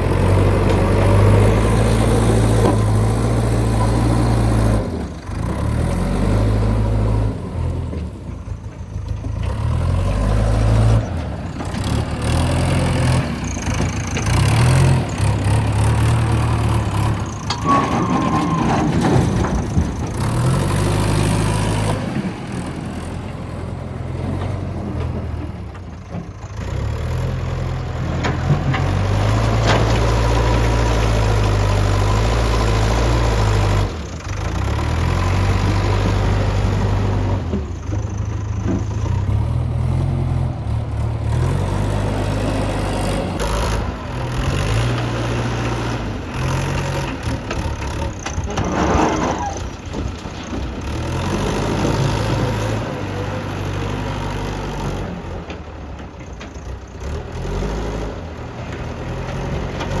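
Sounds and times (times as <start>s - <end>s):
backhoe diesel engine under load: 0.0s - 60.0s.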